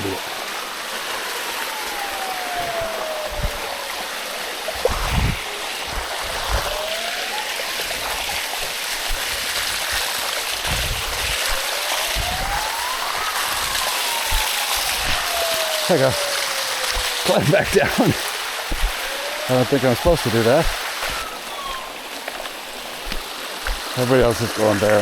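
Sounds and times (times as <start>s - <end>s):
water rushing over rock: 0.0s - 25.0s
faint rising and falling tone: 1.2s - 22.2s
low bumps: 7.9s - 15.8s.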